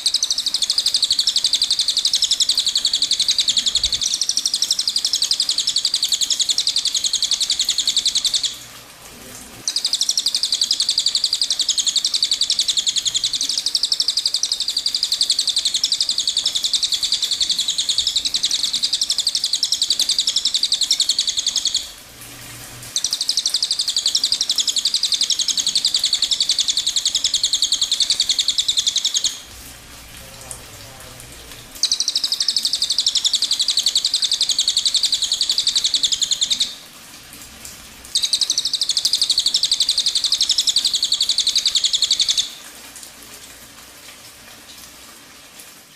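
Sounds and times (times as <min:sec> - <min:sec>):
bird high-pitched trill: 0:09.7 - 0:21.9, 0:22.9 - 0:29.4, 0:38.2 - 0:42.5.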